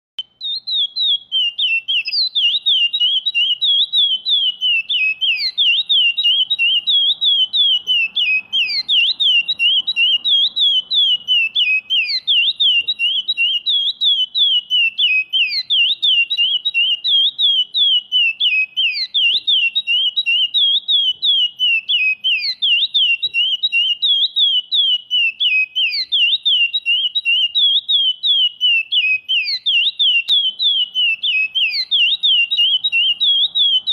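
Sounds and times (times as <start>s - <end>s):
finch singing whistled notes: 0.2s - 33.9s.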